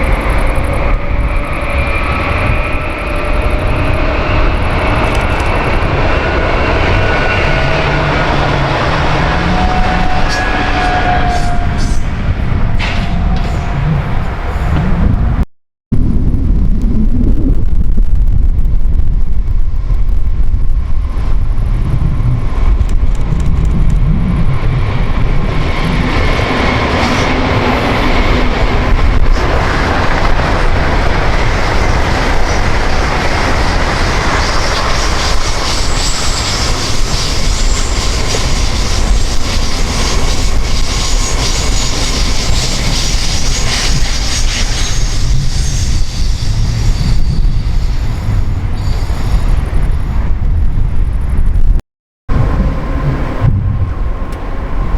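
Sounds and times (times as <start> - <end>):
high wheel squeal: 0.0 - 14.7, 33.6 - 50.0
train wheels rolling on track: 0.0 - 15.3, 21.0 - 50.2
wind on microphone: 0.0 - 54.9.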